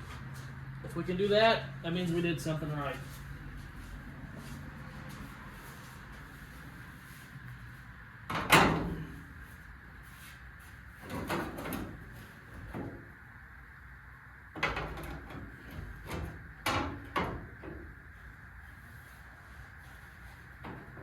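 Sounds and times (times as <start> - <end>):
sheet-metal panel knocks and clunks: 11.0 - 12.0, 14.6 - 17.9.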